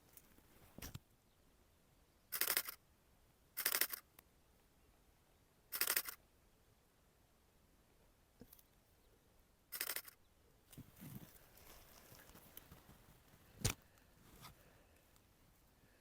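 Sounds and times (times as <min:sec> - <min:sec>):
camera shutter clicking bursts: 0:02.3 - 0:02.8, 0:03.6 - 0:04.1, 0:05.7 - 0:06.2, 0:09.7 - 0:10.2.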